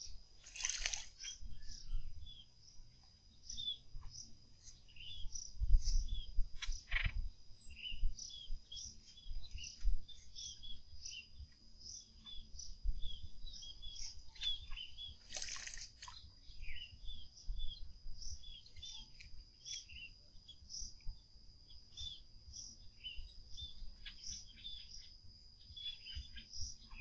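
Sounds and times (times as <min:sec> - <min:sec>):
faint high whine: 0:00.0 - 0:27.0
small birds chirping: 0:00.0 - 0:27.0
bird splashing in water: 0:00.4 - 0:01.3, 0:15.3 - 0:16.2.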